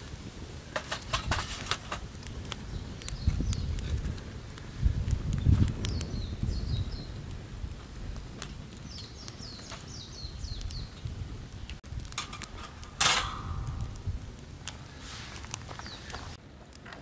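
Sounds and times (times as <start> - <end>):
wood fire crackling: 0.0 - 17.0
rustling scrape: 0.8 - 2.1, 14.9 - 16.4
small bird chirping: 2.6 - 3.8, 5.4 - 7.2, 8.8 - 11.1.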